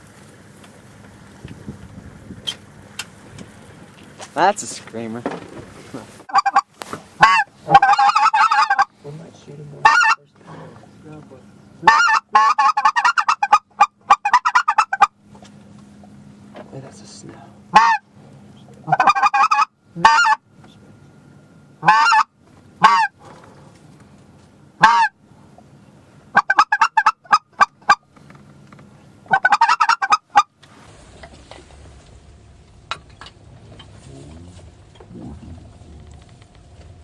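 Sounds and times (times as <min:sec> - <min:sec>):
goose honking: 0:04.4 - 0:09.0, 0:09.7 - 0:11.0, 0:11.8 - 0:15.2, 0:17.7 - 0:20.4, 0:21.8 - 0:23.8, 0:24.8 - 0:25.2, 0:26.3 - 0:28.1, 0:29.2 - 0:30.5.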